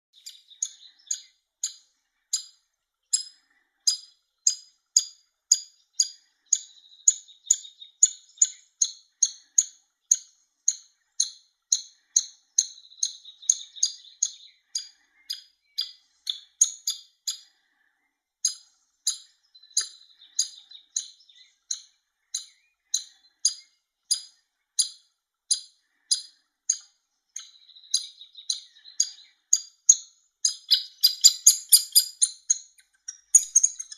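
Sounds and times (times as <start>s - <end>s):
woodpecker nestling begging calls: 3.9s - 17.4s, 18.4s - 26.8s, 27.4s - 33.9s.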